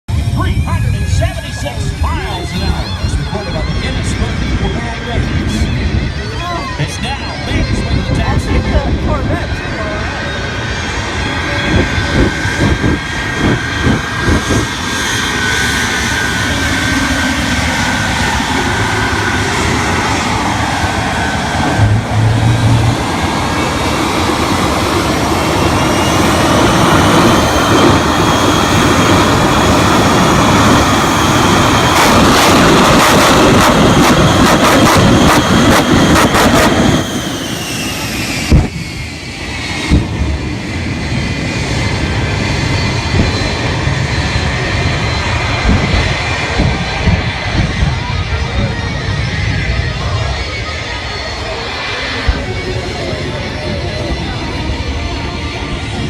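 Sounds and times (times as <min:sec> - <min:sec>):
loud car engine with whine: 0:00.1 - 0:56.0.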